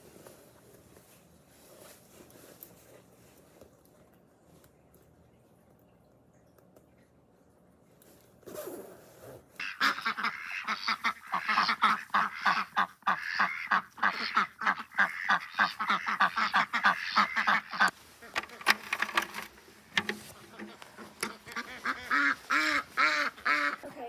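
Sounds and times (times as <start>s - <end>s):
rustle: 0.0s - 4.0s, 8.0s - 24.0s
poultry calling: 9.6s - 18.9s, 20.0s - 24.0s.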